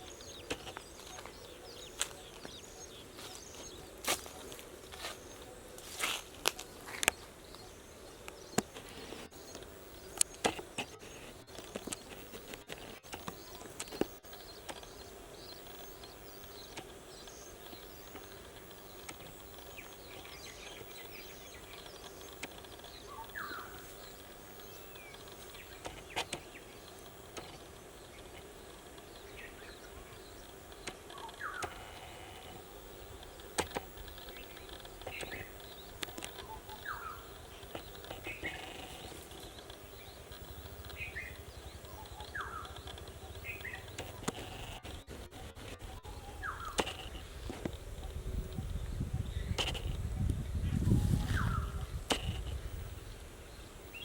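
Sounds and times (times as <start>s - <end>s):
footsteps clicking and crunching: 0.0s - 9.6s
small birds chirping: 0.0s - 54.0s
steady background hum: 0.0s - 54.0s.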